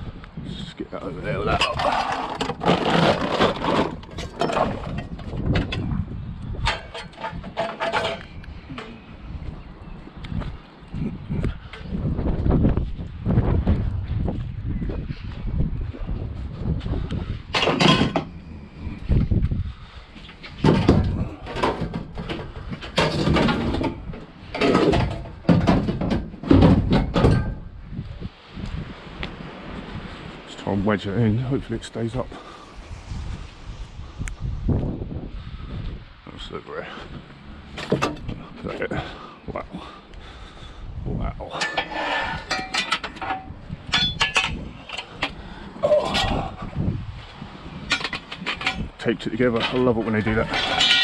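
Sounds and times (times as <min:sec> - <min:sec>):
scrap metal clanking: 0:01.5 - 0:09.1, 0:17.5 - 0:18.4, 0:20.3 - 0:27.7, 0:41.4 - 0:46.6, 0:47.8 - 0:51.0.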